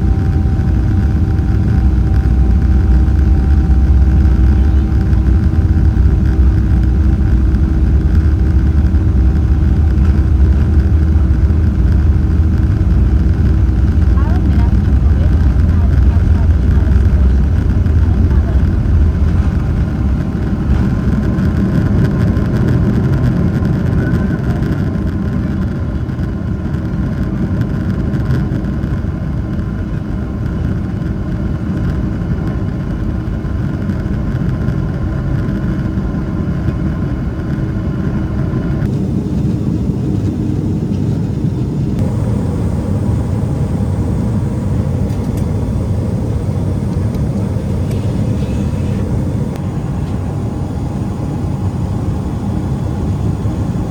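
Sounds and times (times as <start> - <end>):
faint high whine: 0.0 - 21.0, 38.9 - 53.9
jet engine rumble in cabin: 0.0 - 53.9.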